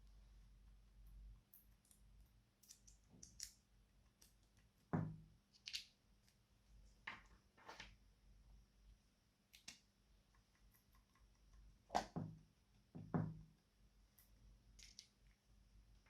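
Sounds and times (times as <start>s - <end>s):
faint small clicks and pops: 1.5s - 4.7s, 9.5s - 12.2s.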